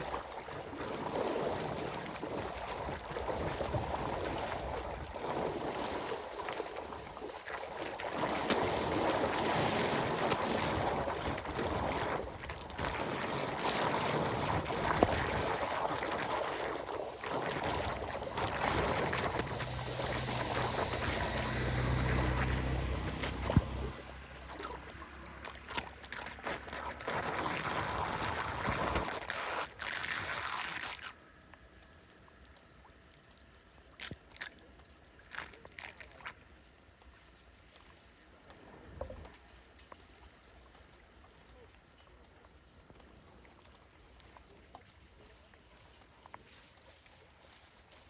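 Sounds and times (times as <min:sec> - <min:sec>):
water rushing and sloshing: 0:00.0 - 0:31.1
short splashes: 0:00.0 - 0:31.2
faint flowing water: 0:00.0 - 0:48.0.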